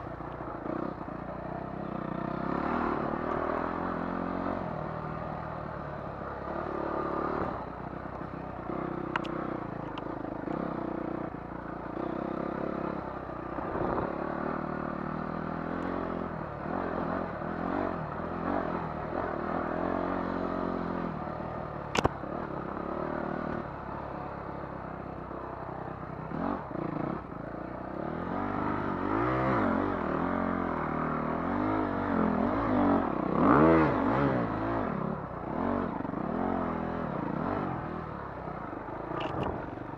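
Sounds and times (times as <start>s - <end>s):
dirt bike engine revving: 1.9s - 5.4s, 28.0s - 38.0s.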